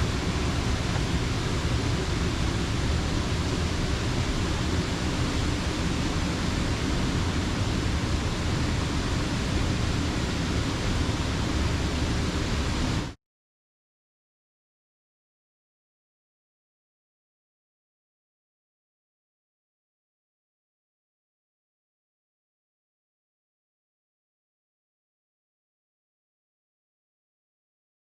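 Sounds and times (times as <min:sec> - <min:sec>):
water rushing over dam: 0:00.0 - 0:13.2.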